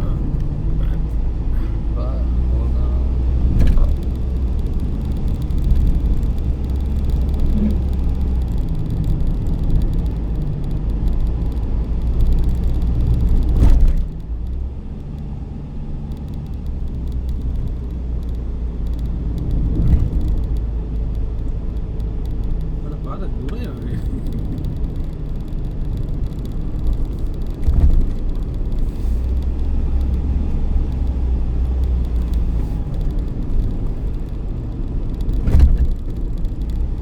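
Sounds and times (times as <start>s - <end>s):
vehicle rumbling: 0.0s - 37.0s.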